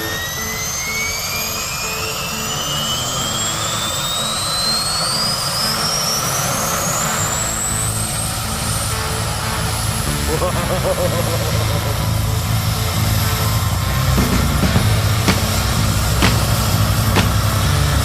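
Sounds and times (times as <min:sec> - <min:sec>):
helicopter turbine whine: 0:00.0 - 0:18.0
low pulsing rumble: 0:09.3 - 0:17.8.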